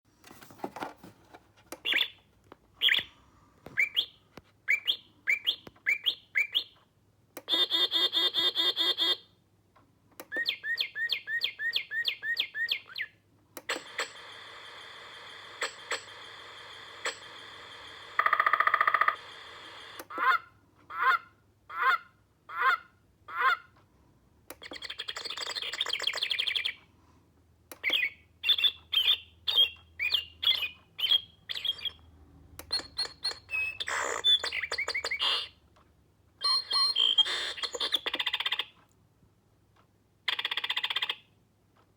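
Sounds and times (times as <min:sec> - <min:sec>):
recorded bird songs and calls: 0:01.8 - 0:02.2, 0:03.7 - 0:06.8, 0:10.3 - 0:13.2, 0:24.6 - 0:26.8, 0:27.8 - 0:32.0, 0:32.6 - 0:35.6, 0:36.4 - 0:38.8.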